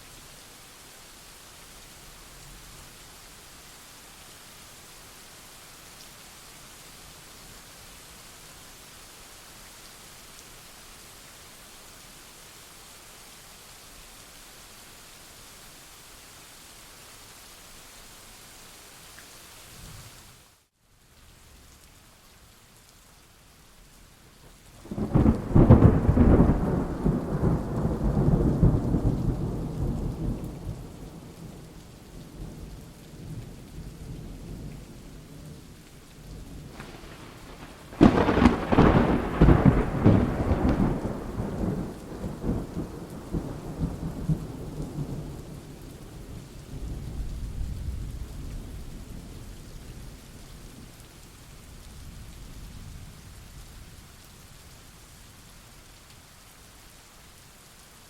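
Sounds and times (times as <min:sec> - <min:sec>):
steady rain: 0:00.0 - 0:58.0
thunder rumbling: 0:24.8 - 0:31.4, 0:36.6 - 0:48.9.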